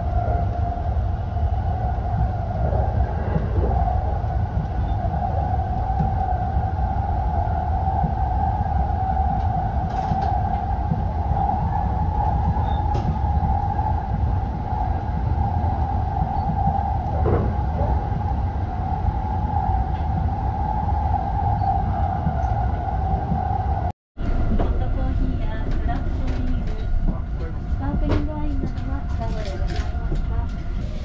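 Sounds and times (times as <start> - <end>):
train whine: 0.0 - 31.0.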